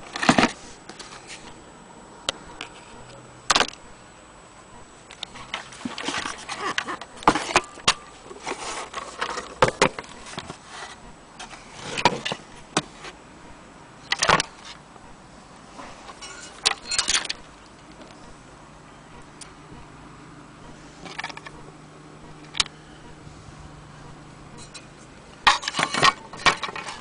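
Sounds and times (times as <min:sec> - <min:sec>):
hard objects clicking and knocking: 0:24.6 - 0:27.0.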